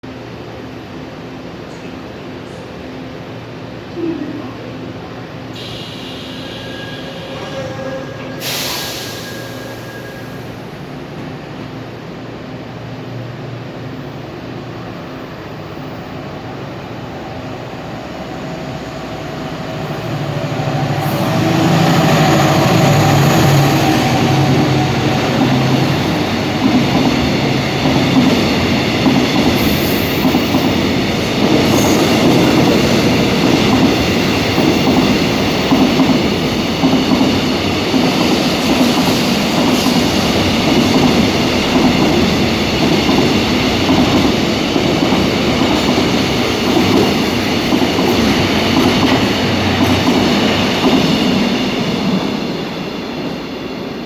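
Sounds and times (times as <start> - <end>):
diesel locomotive engine: 0.0 - 54.0
faint high wheel squeal: 5.6 - 10.6
wagons clickety-clack on rail joints: 26.5 - 51.1.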